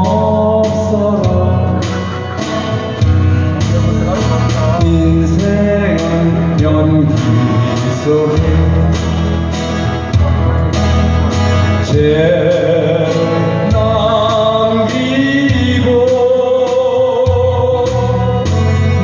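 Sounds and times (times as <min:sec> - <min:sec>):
man singing: 0:00.0 - 0:10.8, 0:11.6 - 0:19.0
instrumental accompaniment: 0:00.0 - 0:19.0.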